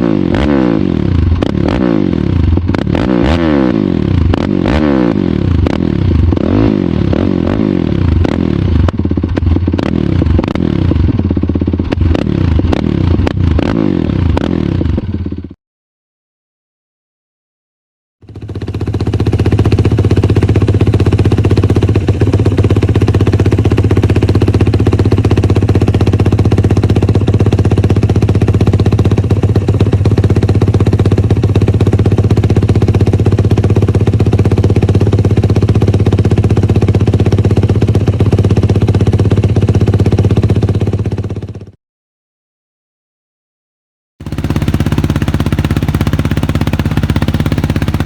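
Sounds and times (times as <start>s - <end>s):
quad engine idling: 18.2s - 41.7s, 44.2s - 48.0s.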